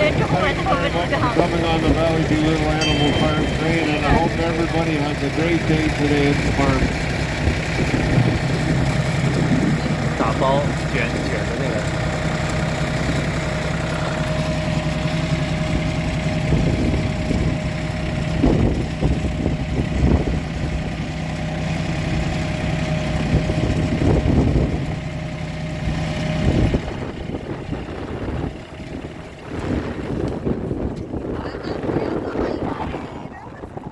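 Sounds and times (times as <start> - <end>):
train engine idling: 0.0 - 32.0.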